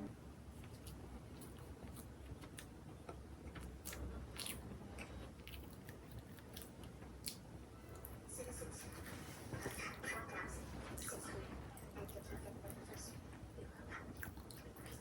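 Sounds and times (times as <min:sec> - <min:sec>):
person chewing food: 0:03.5 - 0:08.2, 0:13.9 - 0:15.0.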